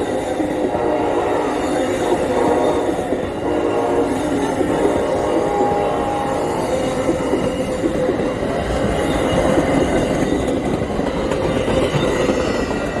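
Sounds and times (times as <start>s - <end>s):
train horn: 0.0s - 7.2s
train wheels rumbling on rail: 0.0s - 13.0s.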